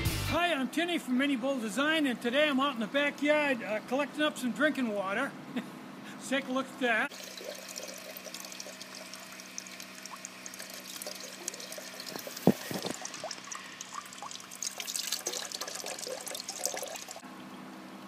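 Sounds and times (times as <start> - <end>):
water pouring and trickling: 7.1 - 17.6.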